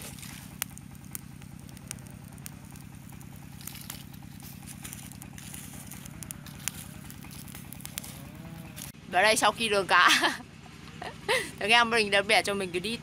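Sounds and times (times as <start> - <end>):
fire crackling and popping: 0.0 - 10.0
steady low hum: 0.0 - 13.0.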